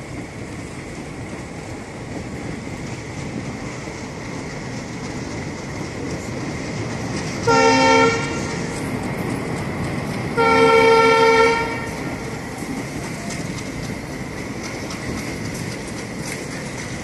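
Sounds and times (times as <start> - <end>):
passenger coaches rolling past: 0.0 - 17.0
train horn blasts: 7.4 - 8.7, 10.4 - 12.1.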